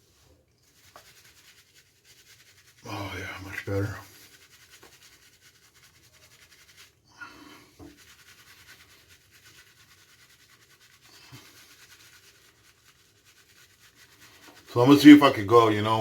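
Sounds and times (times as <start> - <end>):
soft rustles: 0.0 - 2.9
shaving brush swishing lather: 0.0 - 16.0.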